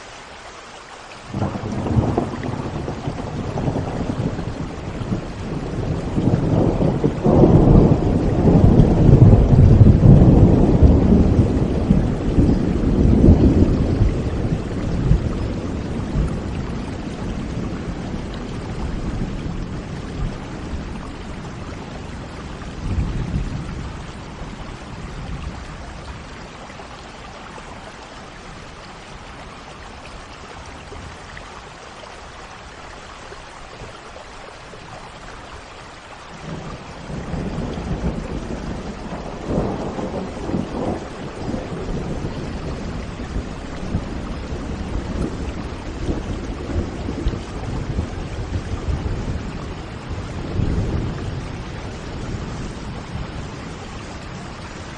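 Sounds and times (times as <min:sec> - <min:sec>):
steady rain: 0:00.0 - 0:54.9
rolling thunder: 0:01.3 - 0:26.6, 0:36.4 - 0:54.9.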